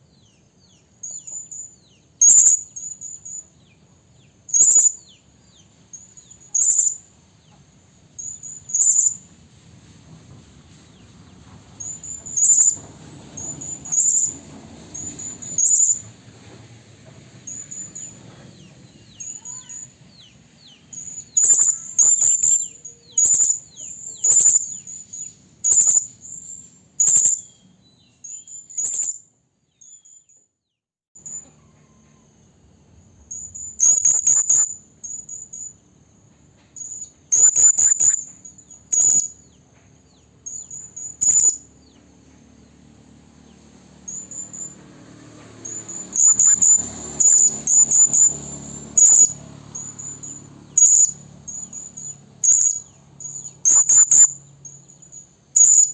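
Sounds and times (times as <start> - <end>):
high-pitched parrot calls: 2.2 - 3.4, 4.5 - 5.1, 6.0 - 7.0, 8.2 - 9.2, 11.8 - 12.8, 13.4 - 16.0, 19.2 - 19.9, 20.9 - 27.5, 28.2 - 29.2, 33.3 - 35.7, 36.8 - 39.4, 40.4 - 41.7, 45.6 - 55.9.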